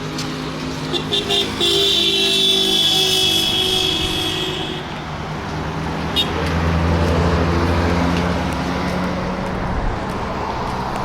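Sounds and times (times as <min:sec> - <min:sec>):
vehicle engine hum passing: 0:00.0 - 0:11.0
car horn tone: 0:00.9 - 0:05.0, 0:06.1 - 0:06.4.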